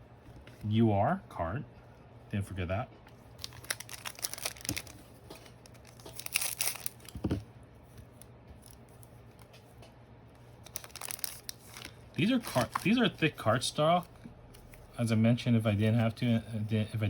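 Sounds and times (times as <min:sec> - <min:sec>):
foil wrapper tearing and crinkling: 0:03.4 - 0:07.2, 0:10.6 - 0:13.4.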